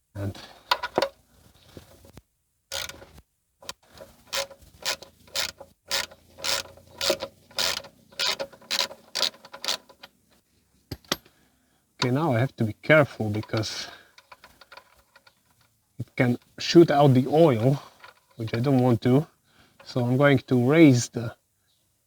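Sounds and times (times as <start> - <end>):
ratchet wrench clicking: 2.7 - 3.0, 4.0 - 10.0.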